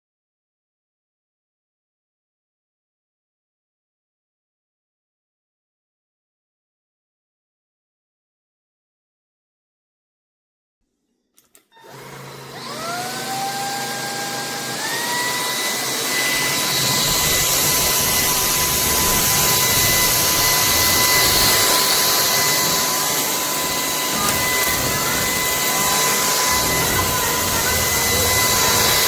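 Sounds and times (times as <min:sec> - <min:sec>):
vacuum cleaner motor whine: 0:11.7 - 0:29.0.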